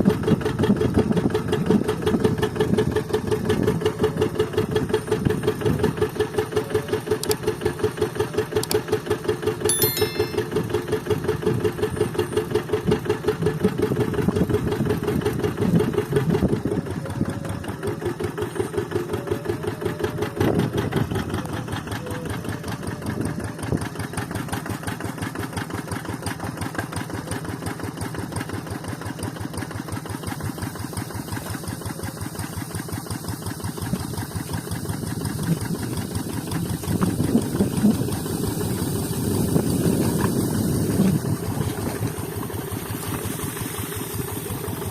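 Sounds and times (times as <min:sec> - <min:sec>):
diesel engine chugging: 0:11.8 - 0:44.9.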